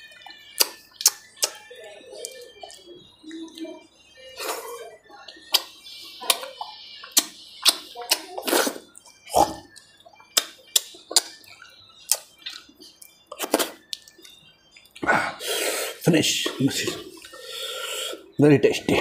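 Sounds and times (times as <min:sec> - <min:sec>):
wet chewing: 0:00.0 - 0:03.7, 0:04.4 - 0:15.1
lip-smacks: 0:00.6 - 0:01.6, 0:06.3 - 0:08.8, 0:09.8 - 0:15.1.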